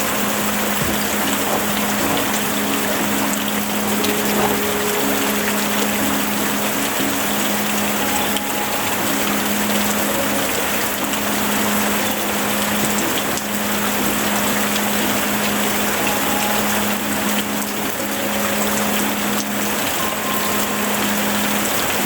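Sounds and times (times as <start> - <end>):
steady rain hiss: 0.0 - 22.0.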